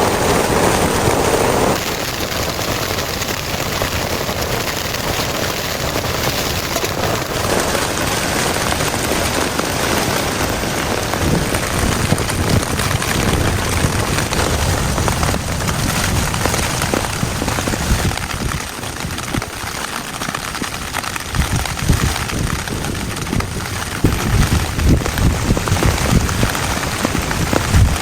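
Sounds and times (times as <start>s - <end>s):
heavy rain falling: 0.0s - 28.0s.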